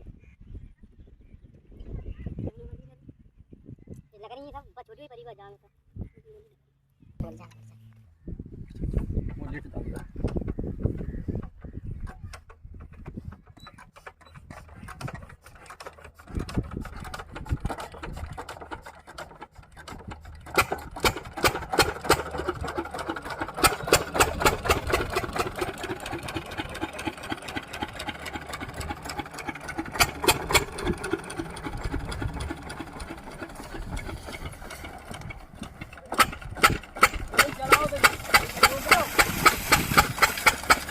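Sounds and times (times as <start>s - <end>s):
diesel engine knocking: 14.1s - 40.9s.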